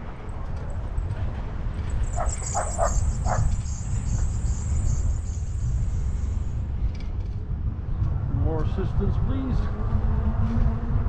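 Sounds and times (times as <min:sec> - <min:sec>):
low rumble of bike riding: 0:00.0 - 0:11.0
wind buffeting microphone: 0:00.0 - 0:11.0
high insect drone: 0:01.9 - 0:06.7.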